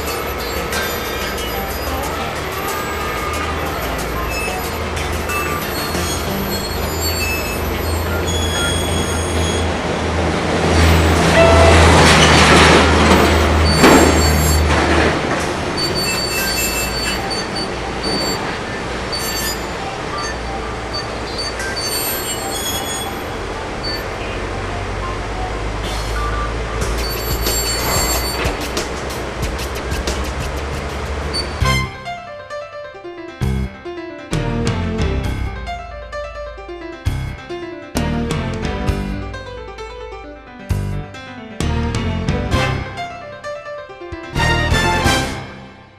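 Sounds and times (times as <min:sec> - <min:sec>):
high wheel squeals: 0:00.0 - 0:32.1.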